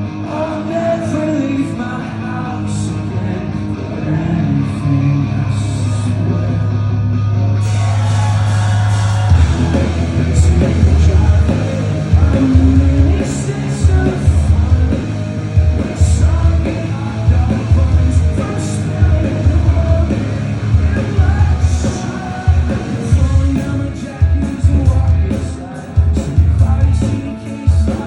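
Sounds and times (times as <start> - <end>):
distorted guitars: 0.0 - 28.0
heavy pulsing bass line: 0.0 - 28.0
rock band playing live: 0.0 - 28.0
drums with crashing cymbals: 7.6 - 28.0.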